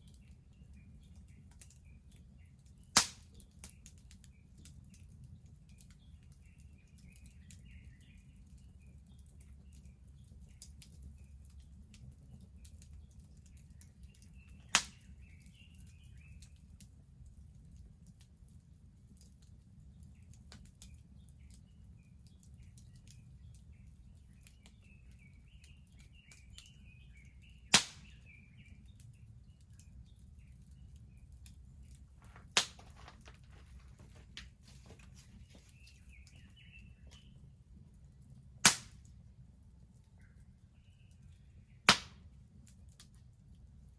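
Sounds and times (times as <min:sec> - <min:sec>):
faint birds twittering: 0:00.0 - 0:39.0, 0:39.9 - 0:42.4
bonfire crackling: 0:00.0 - 0:43.9
loud sharp fire pops: 0:03.0 - 0:03.4, 0:14.4 - 0:15.3, 0:27.6 - 0:28.4, 0:32.2 - 0:36.5, 0:38.6 - 0:39.1, 0:41.9 - 0:42.2.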